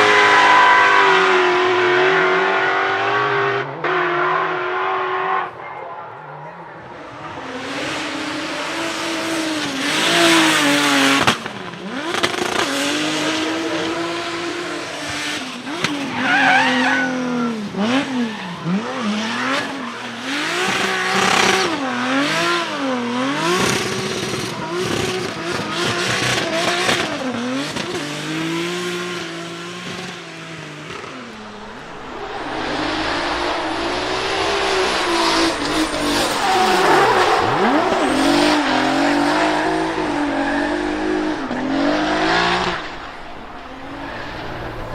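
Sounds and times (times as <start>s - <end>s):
car engine revving: 31.2s - 44.9s.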